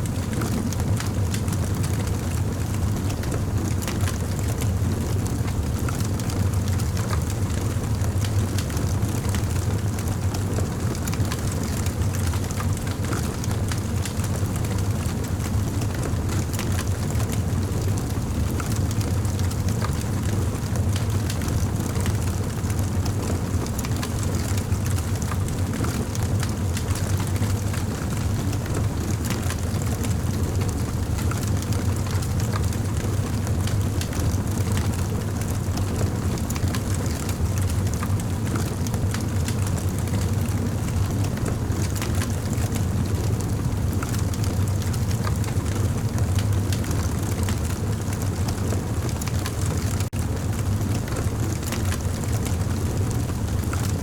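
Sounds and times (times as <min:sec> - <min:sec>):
wood crackling and popping: 0:04.0 - 0:43.2.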